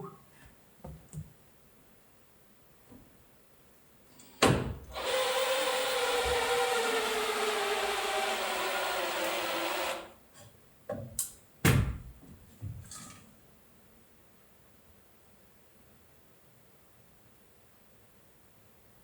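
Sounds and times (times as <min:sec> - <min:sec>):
power tool motor running: 0:04.9 - 0:10.1.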